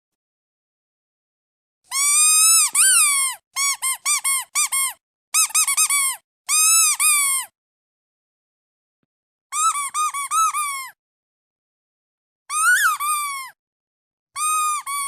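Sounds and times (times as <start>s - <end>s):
squeaky toy duck squeaking: 1.9s - 7.5s, 9.5s - 11.0s, 12.5s - 13.6s, 14.4s - 15.0s.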